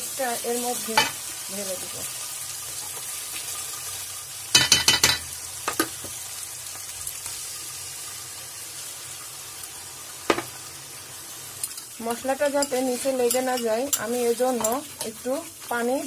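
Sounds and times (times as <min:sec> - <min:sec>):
spices sizzling in hot oil: 0:00.0 - 0:16.0
metal utensils clinking: 0:12.5 - 0:15.1.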